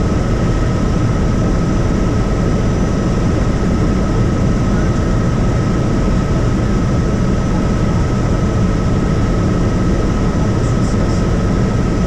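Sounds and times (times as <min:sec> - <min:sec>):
helicopter engine and rotor rumble: 0:00.0 - 0:12.0.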